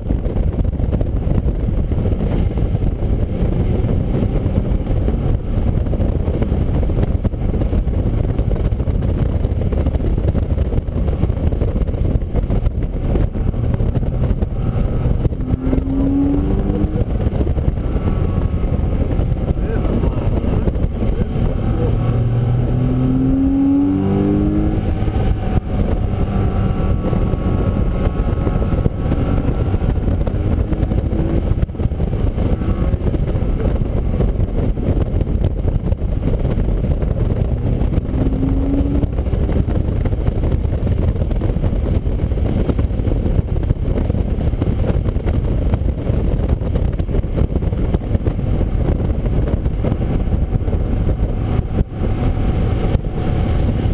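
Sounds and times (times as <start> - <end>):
road and tyre noise: 0.0 - 53.9
car engine revving through gears: 13.3 - 35.3, 37.1 - 40.0.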